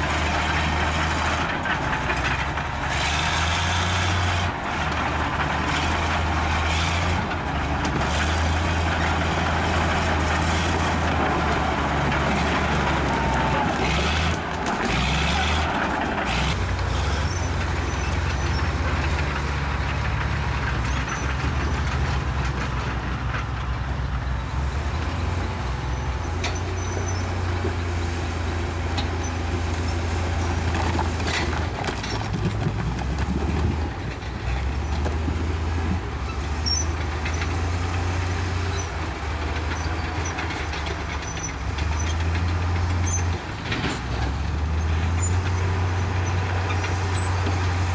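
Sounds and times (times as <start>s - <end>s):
bulldozer diesel engine droning: 0.0s - 47.9s
knocks and clanks: 30.5s - 45.6s.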